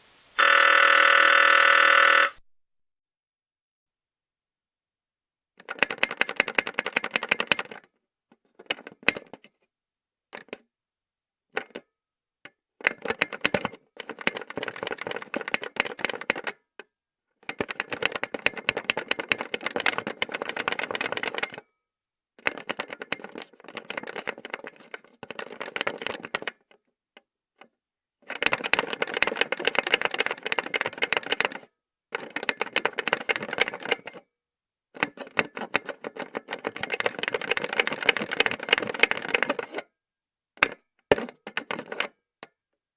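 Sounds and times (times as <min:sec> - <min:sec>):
rotary telephone clicking: 0:28.3 - 0:31.6, 0:35.0 - 0:39.8.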